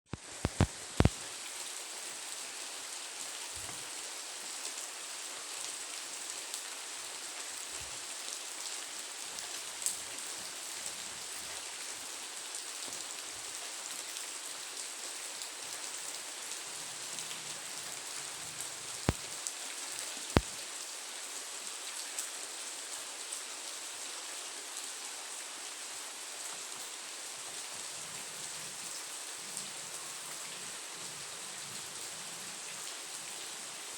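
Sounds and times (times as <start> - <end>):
raindrops ticking: 0.1 - 1.2, 18.4 - 19.5, 20.3 - 20.6
steady rain hiss: 0.1 - 33.9.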